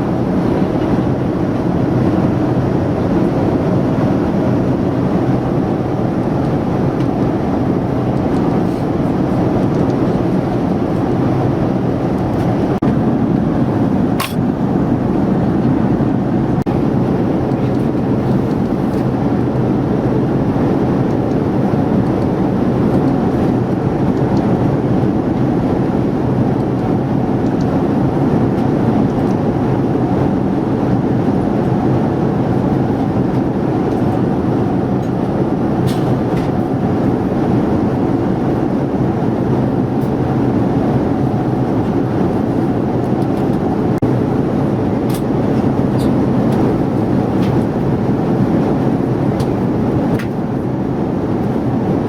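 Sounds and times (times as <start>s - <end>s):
airliner cabin noise: 0.0s - 52.0s.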